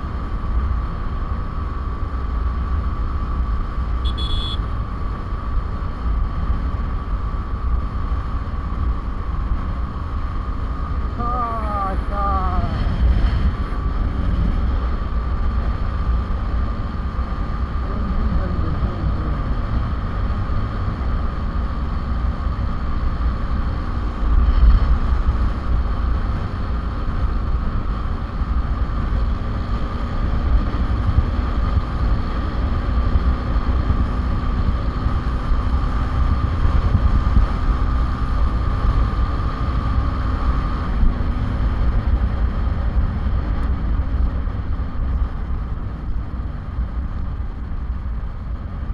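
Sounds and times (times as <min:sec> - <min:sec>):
motorcycle engine: 0:00.0 - 0:48.9
steady high whine: 0:03.0 - 0:05.5, 0:07.1 - 0:22.3.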